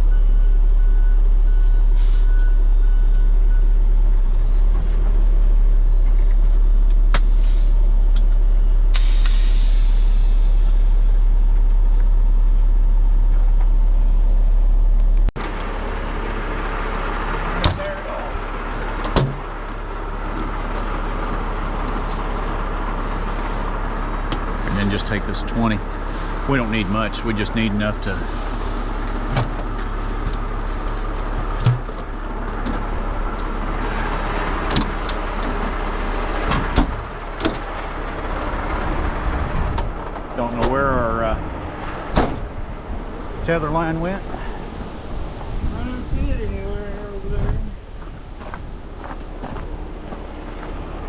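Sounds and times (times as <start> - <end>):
truck diesel engine droning: 0.0 - 51.0
hissy engine sound: 8.8 - 11.8.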